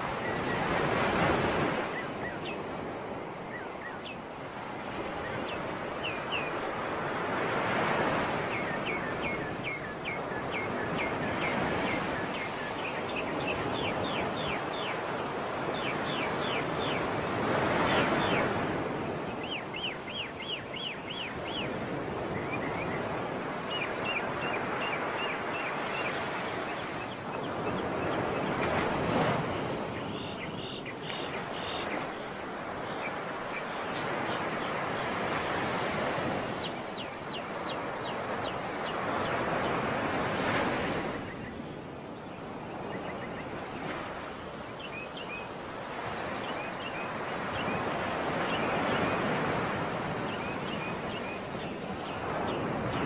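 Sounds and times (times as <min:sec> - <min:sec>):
sea waves washing in: 0:00.0 - 0:03.5.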